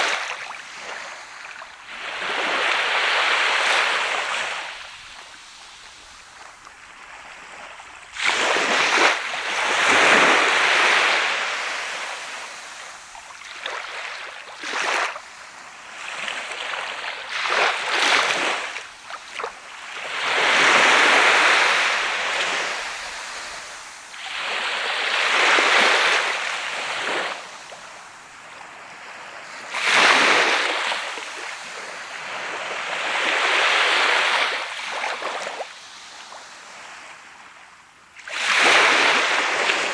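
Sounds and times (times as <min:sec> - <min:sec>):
waves breaking on sandy beach: 0:00.0 - 0:39.9.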